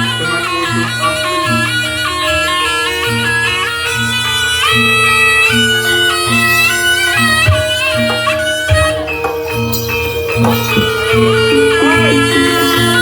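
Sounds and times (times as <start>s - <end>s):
reedy shawm melody: 0.0s - 13.0s
repeating low beat: 11.3s - 13.0s.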